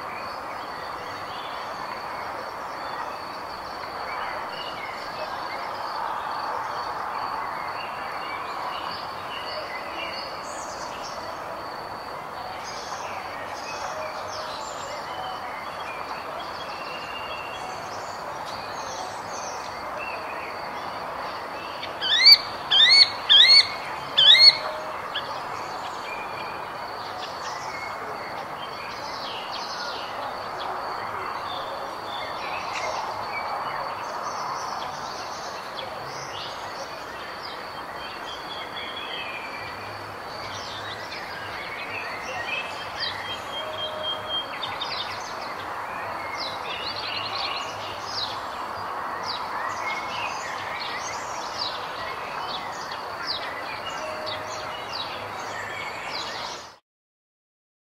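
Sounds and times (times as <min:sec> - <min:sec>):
steady background hiss: 0:00.0 - 0:56.7
birds chirping and singing: 0:21.3 - 0:30.2.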